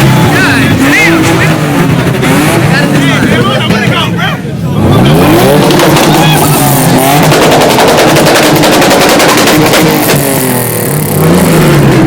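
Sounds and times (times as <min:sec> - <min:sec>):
car engine revving: 0:00.0 - 0:12.0
exhaust pops and crackles: 0:05.5 - 0:12.0.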